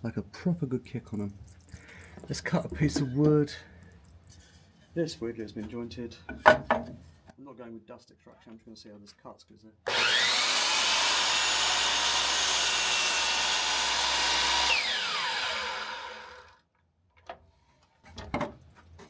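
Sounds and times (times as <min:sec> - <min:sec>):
miter saw whining and cutting wood: 0:09.9 - 0:16.6
saw motor winding down: 0:09.9 - 0:16.6.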